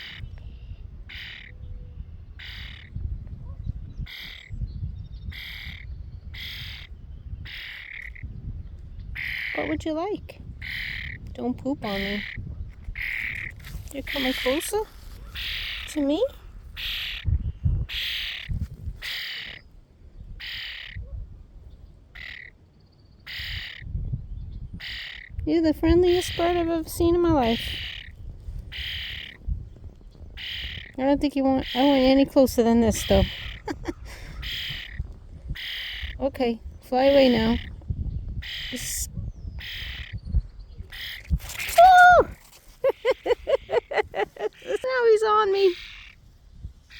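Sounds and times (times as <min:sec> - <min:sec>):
bird harsh calls: 0:01.1 - 0:01.6, 0:02.4 - 0:02.9, 0:04.0 - 0:04.5, 0:05.2 - 0:08.3, 0:10.6 - 0:11.2, 0:13.0 - 0:17.3, 0:17.9 - 0:19.7, 0:20.4 - 0:21.0, 0:22.1 - 0:22.5, 0:23.2 - 0:23.8, 0:27.4 - 0:29.4, 0:30.3 - 0:31.0, 0:33.0 - 0:36.2, 0:38.4 - 0:40.3, 0:40.9 - 0:41.8, 0:42.5 - 0:46.2.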